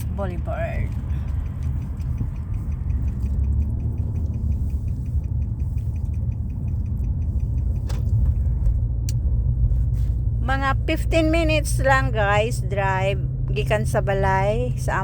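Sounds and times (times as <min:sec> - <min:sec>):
fast regular ticking: 0:00.0 - 0:09.6
car driving rumble from inside: 0:00.0 - 0:15.0
sharp clicks: 0:00.8 - 0:09.3.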